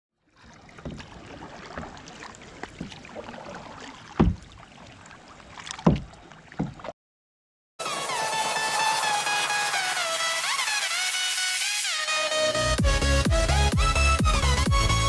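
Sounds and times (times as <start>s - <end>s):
water splashing: 0.2s - 7.0s
dull thumps: 4.0s - 4.6s, 5.7s - 6.9s.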